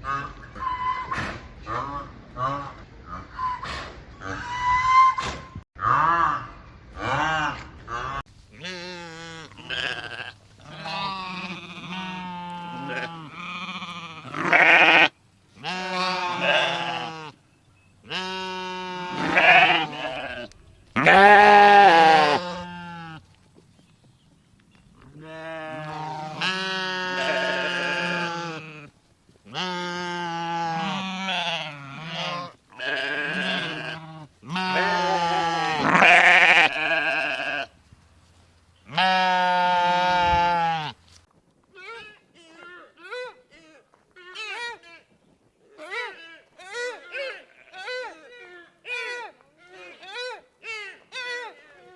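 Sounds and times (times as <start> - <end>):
livestock bleating: 5.8 - 17.4, 18.0 - 23.2, 25.2 - 28.9, 29.5 - 37.8, 38.9 - 41.0, 45.8 - 50.2.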